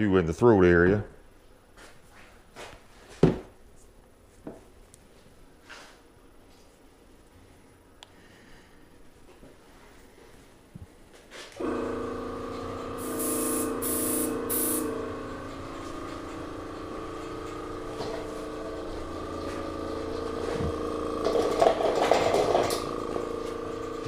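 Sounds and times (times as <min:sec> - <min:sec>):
compressor humming: 0:11.6 - 0:24.0
loud rough noise: 0:11.6 - 0:24.0
airbrush hissing sprays: 0:12.6 - 0:15.3.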